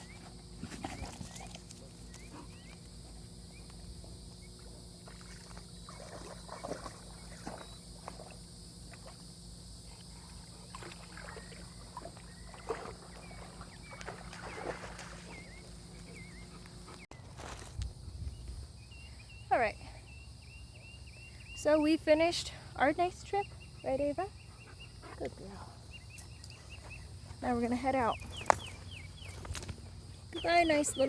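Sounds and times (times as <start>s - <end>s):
water splashing and sloshing: 5.0s - 9.4s, 10.3s - 16.2s.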